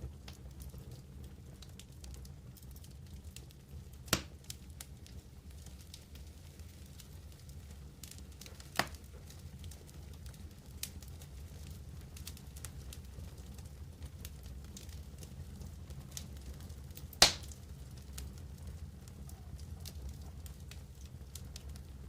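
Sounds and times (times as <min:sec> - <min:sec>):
campfire burning: 0:00.0 - 0:22.0
small crackles: 0:00.0 - 0:22.0
sharp pops from burning wood: 0:01.7 - 0:15.3, 0:16.0 - 0:18.4.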